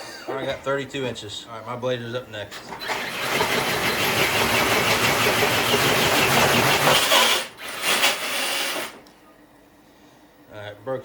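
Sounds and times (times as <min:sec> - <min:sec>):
electric toy truck motor straining: 0:02.8 - 0:09.0.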